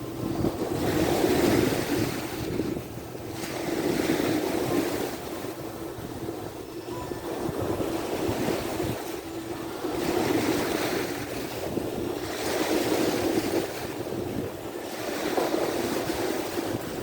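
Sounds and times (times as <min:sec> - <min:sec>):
sea waves washing onto shore: 0:00.0 - 0:17.0
wind buffeting microphone: 0:00.0 - 0:17.0.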